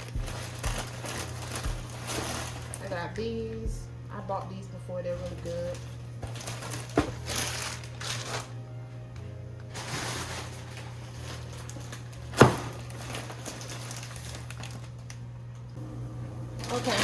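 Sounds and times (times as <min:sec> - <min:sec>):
plastic packaging crinkling: 0:00.0 - 0:03.2, 0:05.2 - 0:08.8, 0:09.6 - 0:15.7, 0:16.6 - 0:17.0
steady low hum: 0:00.0 - 0:17.0.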